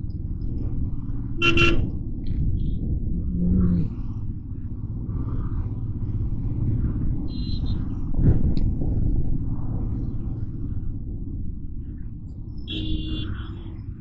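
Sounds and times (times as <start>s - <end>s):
motorcycle engine rumble: 0.0s - 14.0s
vehicle horn honk: 1.4s - 1.9s, 12.7s - 13.6s.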